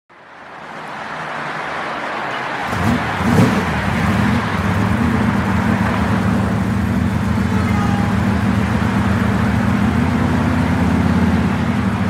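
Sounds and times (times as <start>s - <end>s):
low engine hum: 2.7s - 12.0s.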